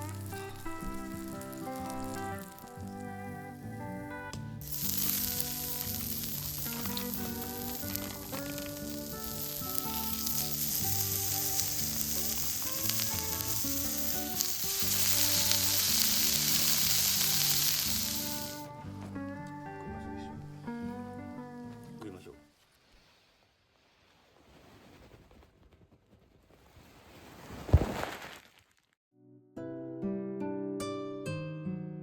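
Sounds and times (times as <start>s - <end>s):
meat sizzling on griddle: 0.0s - 3.0s, 4.6s - 18.6s
soft background music: 0.0s - 22.5s.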